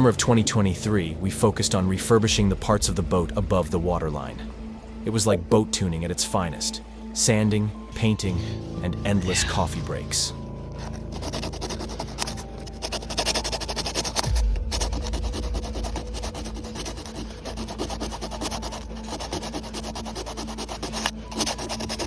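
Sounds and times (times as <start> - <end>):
background music: 0.0 - 22.0
sandpaper rubbing back and forth: 10.7 - 22.0.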